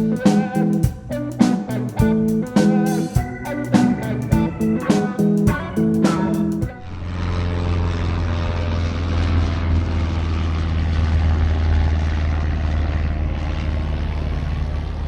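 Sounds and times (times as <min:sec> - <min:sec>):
boat engine droning: 0:03.6 - 0:15.0.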